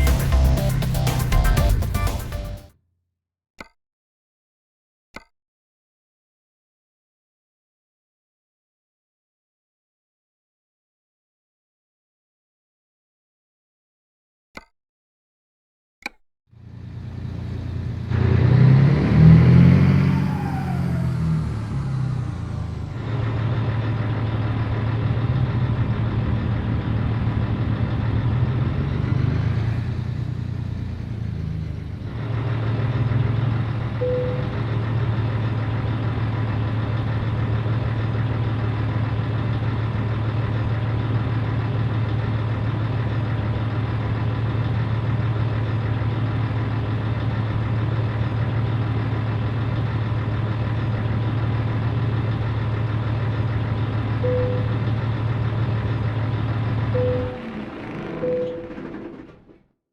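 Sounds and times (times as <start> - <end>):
truck diesel engine running: 0.0 - 2.7, 16.6 - 59.6
brief beep: 34.0 - 34.5, 54.2 - 54.8, 57.0 - 57.4, 58.2 - 58.7.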